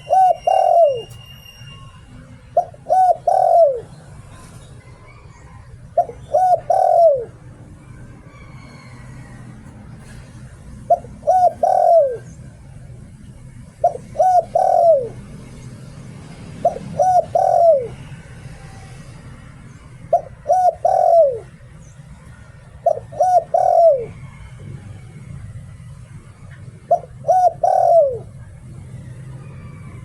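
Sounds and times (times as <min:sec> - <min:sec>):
dove cooing: 0:00.0 - 0:01.2, 0:02.2 - 0:04.0, 0:05.1 - 0:15.6, 0:16.2 - 0:18.9, 0:20.1 - 0:25.2, 0:26.4 - 0:30.0.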